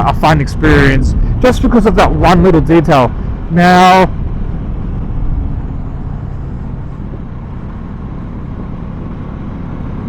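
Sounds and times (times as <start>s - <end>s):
wind noise: 0.0s - 10.0s
motorcycle engine: 3.0s - 10.0s.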